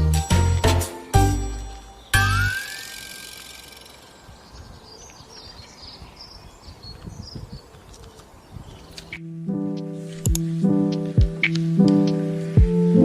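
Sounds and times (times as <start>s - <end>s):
music track: 0.0s - 2.9s, 9.2s - 13.0s.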